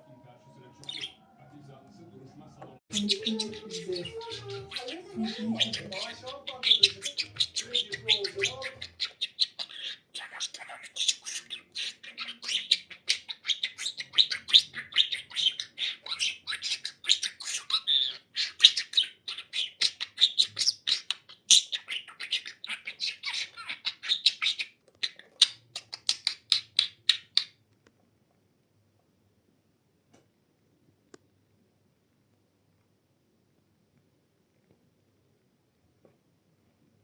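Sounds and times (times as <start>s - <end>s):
budgerigar warbling and chattering: 0.8s - 1.3s, 2.9s - 27.6s.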